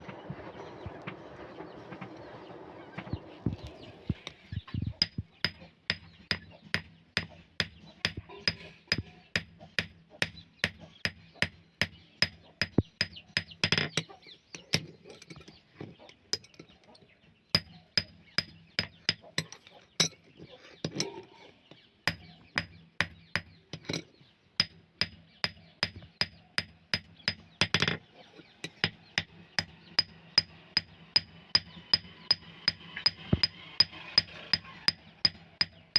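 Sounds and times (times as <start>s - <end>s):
hammer striking steel: 28.7s - 35.9s.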